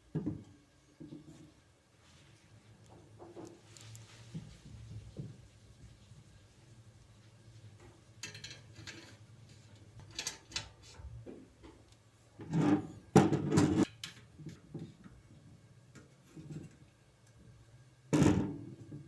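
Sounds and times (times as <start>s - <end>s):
hardware clicking and clattering: 8.2s - 9.2s.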